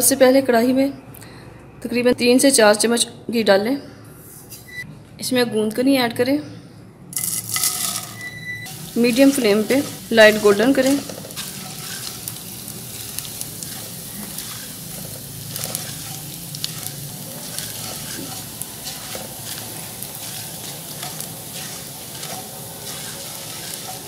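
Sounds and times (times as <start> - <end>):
gum sizzling in hot fat: 7.2 - 24.0
small crackles: 8.6 - 24.0
spatula stirring: 8.7 - 24.0.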